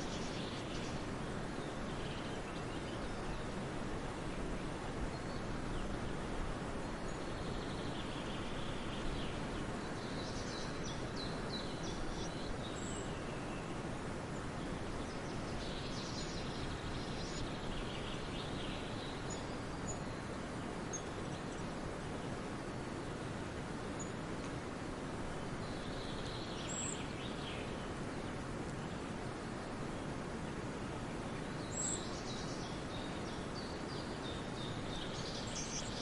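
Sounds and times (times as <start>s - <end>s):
small birds chirping: 0.0s - 3.6s, 6.8s - 22.4s, 25.3s - 29.2s, 31.2s - 36.0s
outdoor background hiss: 0.0s - 36.0s.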